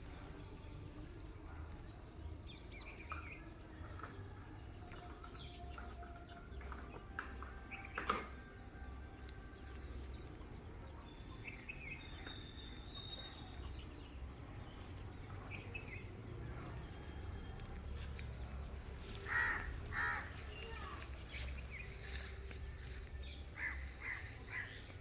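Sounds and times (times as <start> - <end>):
crow cawing: 19.1 - 20.8, 23.6 - 24.8.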